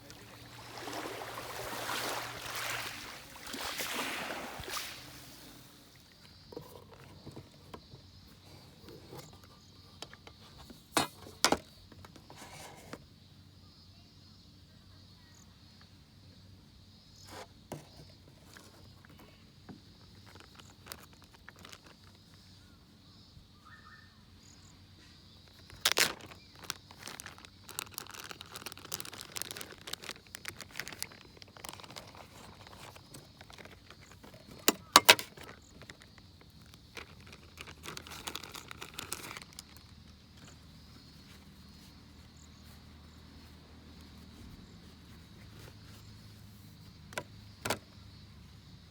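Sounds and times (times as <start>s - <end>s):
camp gear clicking and rustling: 3.8s - 13.1s, 17.3s - 22.4s, 25.4s - 48.2s
insect chirring: 18.0s - 48.9s.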